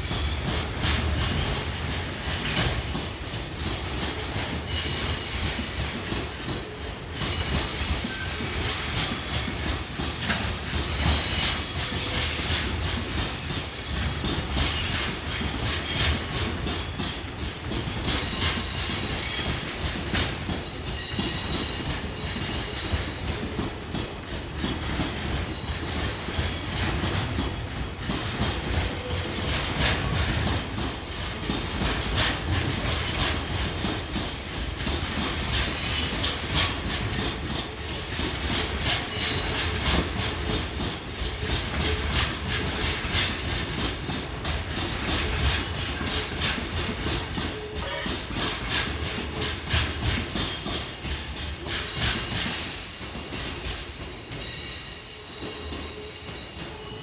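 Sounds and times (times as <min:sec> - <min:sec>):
train wheels clattering over joints: 0:00.0 - 0:57.0
high wheel squeal: 0:07.2 - 0:16.5, 0:28.1 - 0:37.2, 0:45.7 - 0:57.0.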